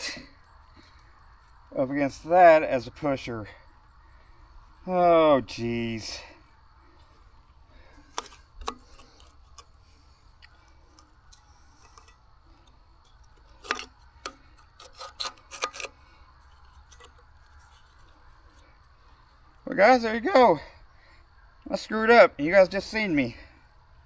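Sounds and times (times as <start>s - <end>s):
faint low hum: 0.0s - 24.0s
clicks and knocks of steel tools: 8.1s - 9.7s, 10.4s - 15.9s.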